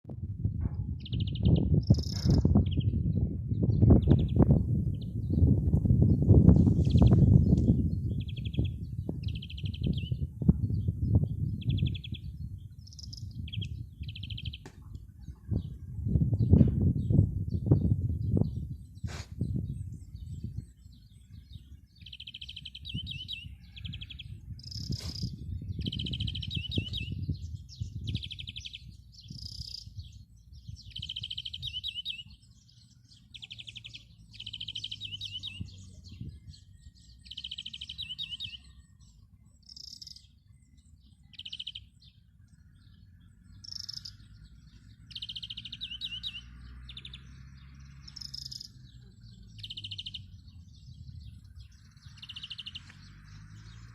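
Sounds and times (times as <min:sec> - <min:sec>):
low rumble: 0:00.1 - 0:21.8
songbird trilling: 0:01.0 - 0:05.4, 0:06.1 - 0:15.8, 0:16.4 - 0:53.9.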